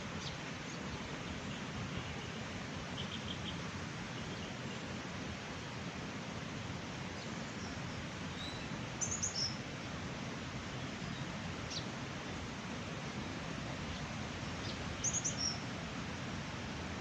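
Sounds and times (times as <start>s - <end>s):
mountain water rushing: 0.0s - 17.0s
small bird chirping: 8.4s - 9.6s, 14.6s - 15.6s.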